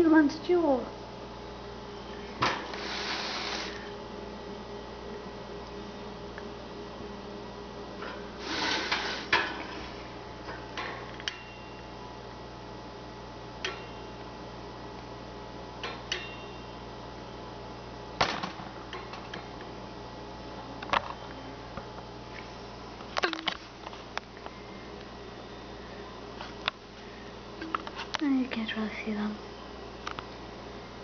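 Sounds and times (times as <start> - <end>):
steady hum: 0.0 - 31.0.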